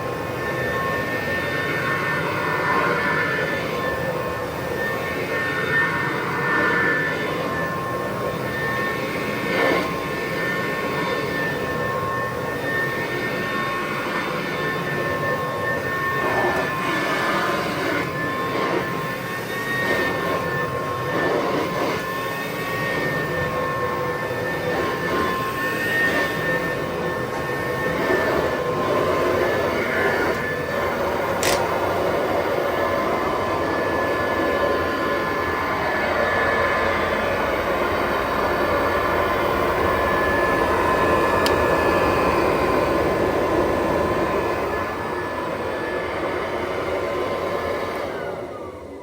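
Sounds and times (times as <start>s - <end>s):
vacuum cleaner running: 0.0s - 49.0s
sharp click: 31.4s - 31.7s.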